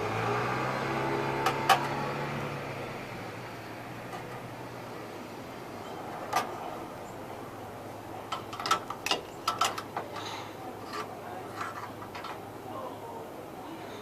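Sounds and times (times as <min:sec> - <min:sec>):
sharp clicks and knocks: 0:08.3 - 0:10.3.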